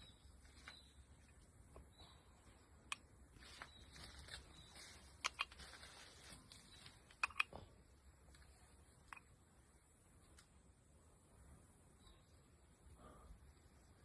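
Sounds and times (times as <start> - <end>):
faint low hum: 0.0 - 14.0
sharp short clicks: 7.1 - 7.6.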